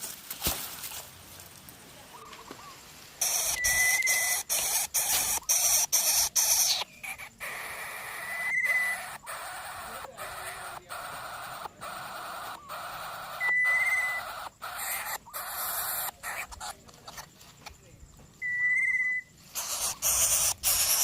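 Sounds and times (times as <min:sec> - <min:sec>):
nestlings hissing harshly: 0:03.2 - 0:17.7, 0:19.4 - 0:21.0.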